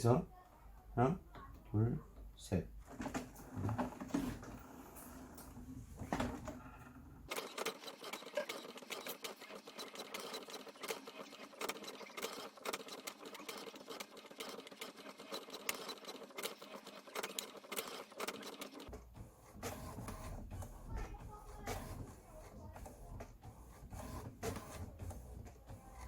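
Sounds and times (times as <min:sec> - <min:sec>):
inkjet printer rapid clicks: 0:07.3 - 0:26.0.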